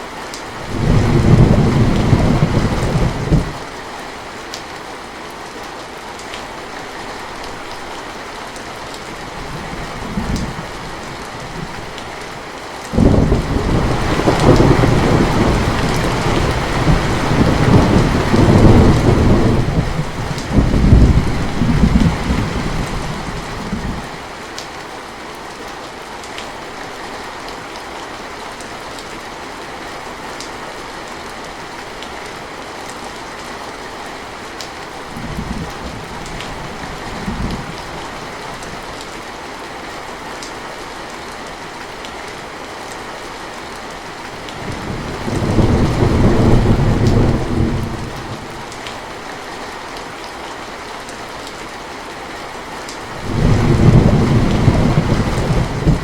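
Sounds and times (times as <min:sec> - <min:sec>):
steady rain: 0:00.0 - 0:56.0
thunder rumbling: 0:00.6 - 0:03.6, 0:13.0 - 0:24.1, 0:44.6 - 0:48.6, 0:53.2 - 0:56.0.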